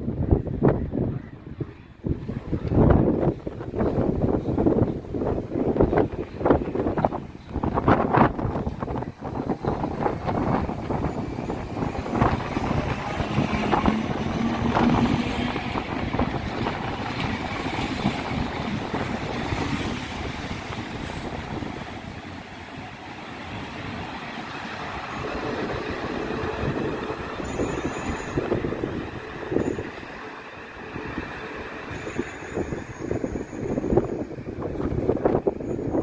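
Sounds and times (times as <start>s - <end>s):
train rumbling on rails: 0.0s - 36.0s
wind buffeting microphone: 0.0s - 36.0s.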